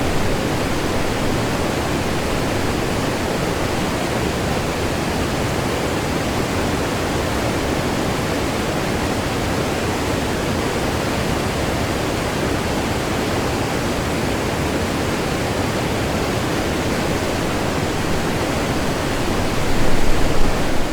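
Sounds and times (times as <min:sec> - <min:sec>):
waterfall rushing: 0:00.0 - 0:09.8, 0:14.9 - 0:20.9.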